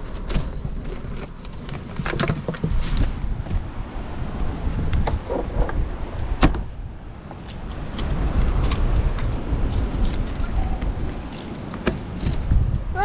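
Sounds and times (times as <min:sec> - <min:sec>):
wind buffeting microphone: 0:00.0 - 0:13.0
metallic clicks and jingles: 0:07.4 - 0:08.1, 0:09.7 - 0:12.7.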